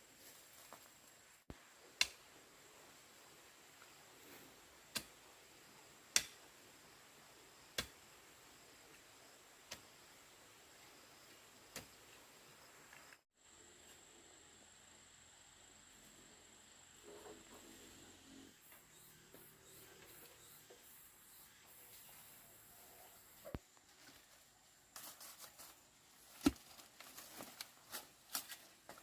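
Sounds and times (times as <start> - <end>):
faint steady hiss: 0.0 - 29.0.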